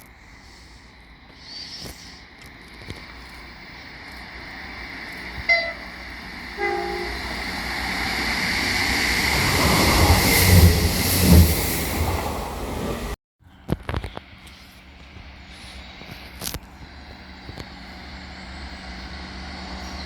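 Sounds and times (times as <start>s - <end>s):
train rumble: 0.0s - 20.0s
wheel clatter over rail joints: 2.6s - 13.2s
two-tone train horn: 5.4s - 8.0s.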